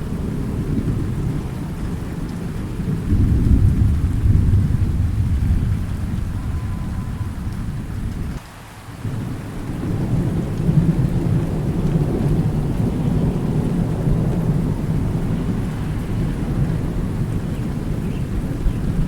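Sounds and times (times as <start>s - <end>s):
rolling thunder: 0.0s - 8.4s, 9.0s - 19.0s
steady rain: 0.0s - 19.0s.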